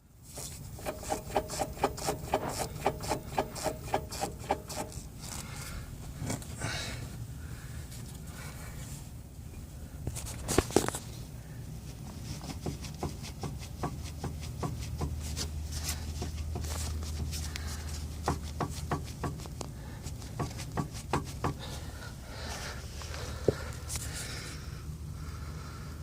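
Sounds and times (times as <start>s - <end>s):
steady low hum: 0.0s - 26.0s
driveshaft clicking and knocking: 0.8s - 4.9s.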